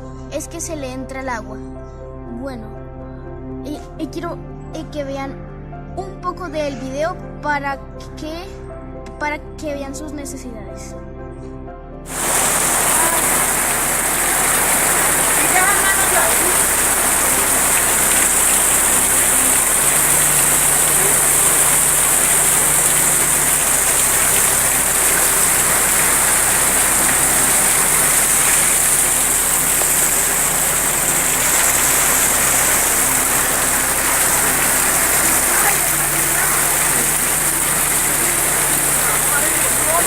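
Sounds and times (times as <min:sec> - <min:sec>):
rain falling: 0:12.1 - 0:40.0
water leaking through roof: 0:12.1 - 0:40.0.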